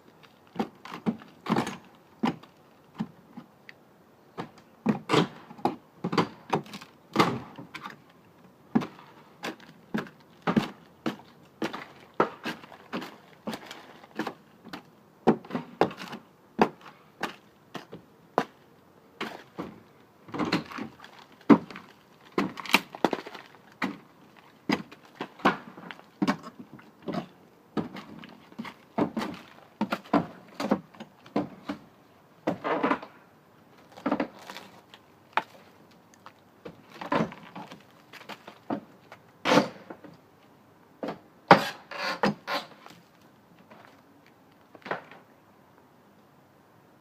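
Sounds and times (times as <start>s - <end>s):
scraping strokes on wood: 41.5s - 42.8s.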